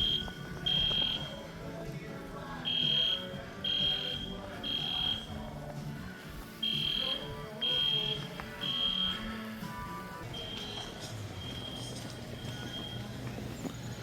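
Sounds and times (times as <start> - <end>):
fire alarm beeping: 0.0 - 1.5, 2.6 - 5.5, 6.6 - 9.5, 10.2 - 14.0
music playing: 0.0 - 14.0.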